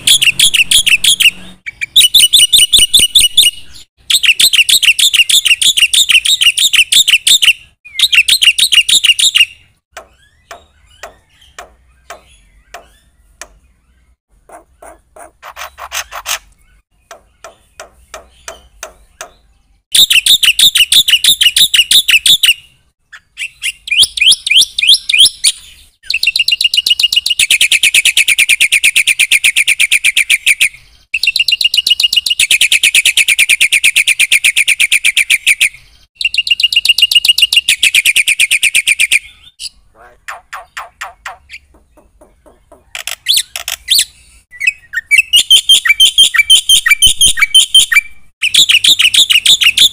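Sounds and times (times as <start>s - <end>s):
starling singing: 0.0s - 49.9s.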